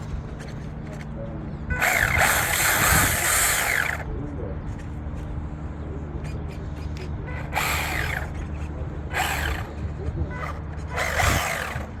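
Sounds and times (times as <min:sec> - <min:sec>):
electric motor whirring: 0:01.7 - 0:04.1, 0:07.3 - 0:12.0.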